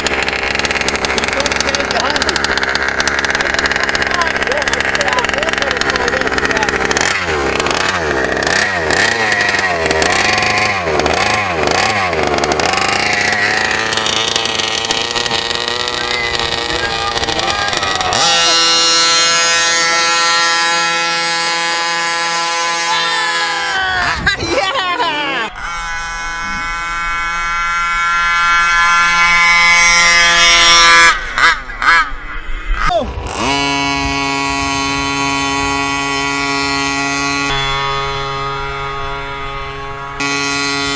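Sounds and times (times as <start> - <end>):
small two-stroke engine revving: 0.0 - 40.9.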